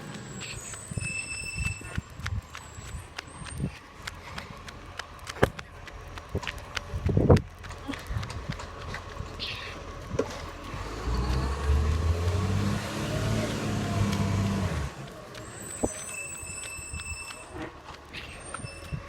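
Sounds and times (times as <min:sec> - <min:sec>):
garbage truck engine pulling away: 0:08.6 - 0:18.9.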